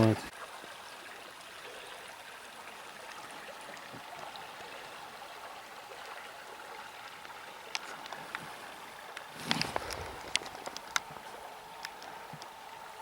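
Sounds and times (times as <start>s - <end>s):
river water running: 0.0s - 13.0s
light clicks: 9.1s - 12.6s.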